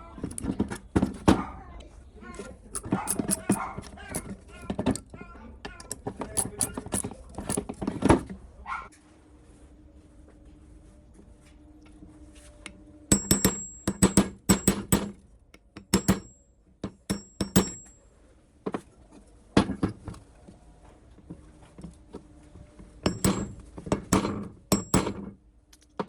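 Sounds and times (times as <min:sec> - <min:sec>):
hammer striking metal: 0:13.1 - 0:15.2, 0:15.8 - 0:18.0, 0:23.0 - 0:25.3.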